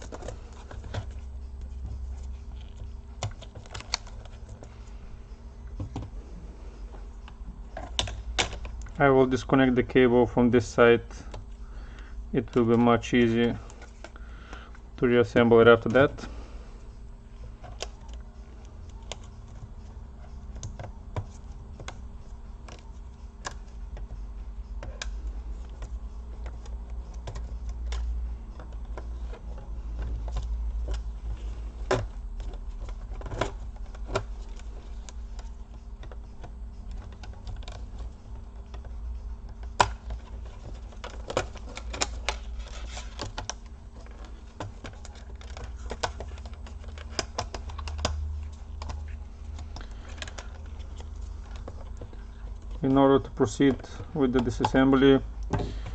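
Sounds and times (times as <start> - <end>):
plastic parts clicking: 0.0 - 1.7, 2.5 - 4.7, 24.8 - 55.9
low steady hum: 0.0 - 55.9.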